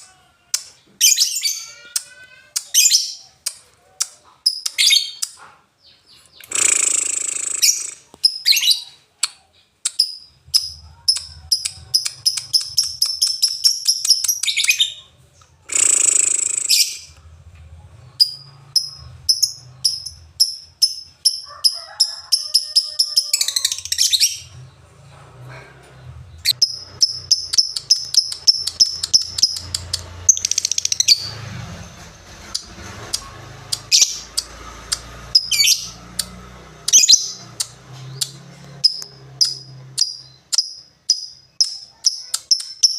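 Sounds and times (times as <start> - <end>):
harsh noisy bird calls: 4.3 - 14.2
bird chirping rapidly: 4.5 - 9.0, 9.8 - 15.1, 15.7 - 17.2, 26.3 - 31.4, 32.5 - 36.3, 36.9 - 42.9.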